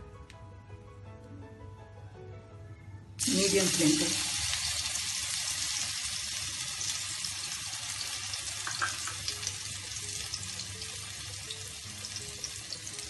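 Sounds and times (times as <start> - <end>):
eggplant sizzling in hot oil: 3.2 - 13.0.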